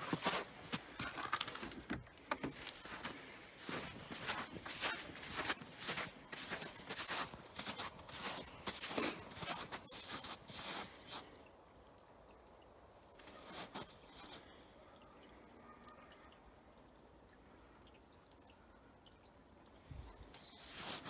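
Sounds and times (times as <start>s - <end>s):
footsteps: 0.0s - 11.3s.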